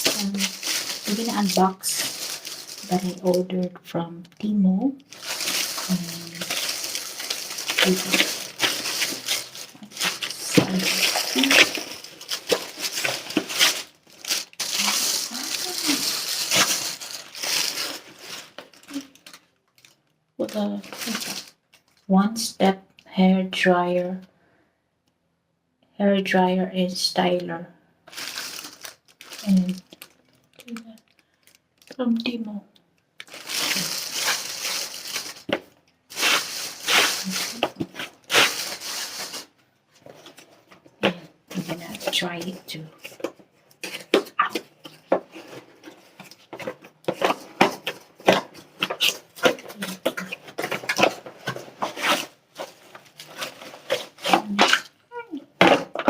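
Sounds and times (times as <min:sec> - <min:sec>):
plastic packaging crinkling: 0:00.0 - 0:22.1, 0:28.1 - 0:32.2, 0:33.2 - 0:56.0.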